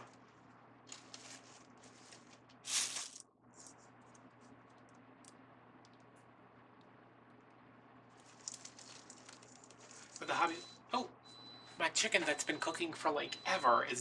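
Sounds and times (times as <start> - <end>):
steady low hum: 0.0 - 14.0
loud rustle: 0.9 - 3.2.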